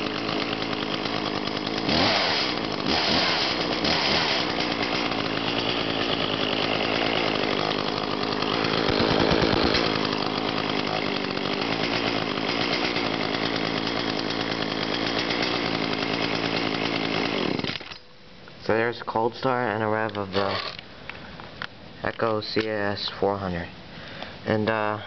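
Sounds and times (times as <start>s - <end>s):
chainsaw running: 0.0s - 18.0s, 20.1s - 20.9s.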